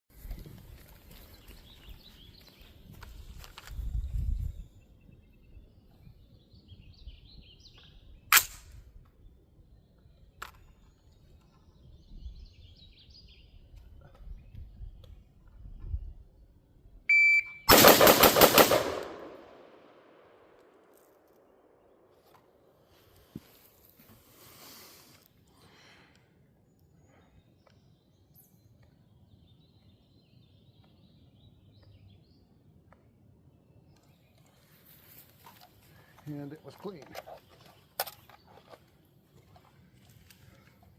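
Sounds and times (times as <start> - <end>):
birds chirping: 0.2 - 8.3, 21.8 - 40.9.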